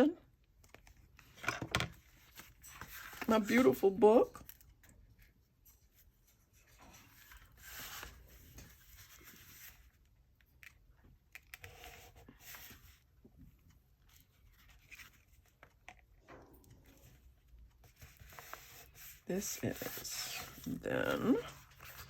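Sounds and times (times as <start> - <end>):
paper rustling and scraping: 0.8 - 4.6, 5.8 - 10.0, 16.9 - 22.0.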